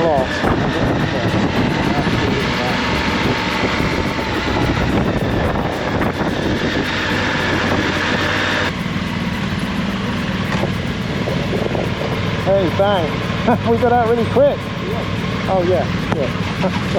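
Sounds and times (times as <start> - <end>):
motorcycle engine running: 0.0 - 16.9
road and wind noise: 0.0 - 16.9
steady low hum: 0.0 - 16.9.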